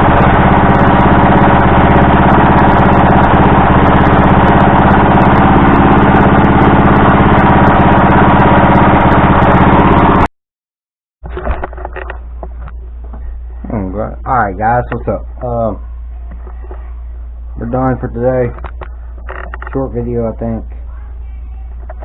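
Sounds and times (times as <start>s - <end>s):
small engine running: 0.0s - 10.3s.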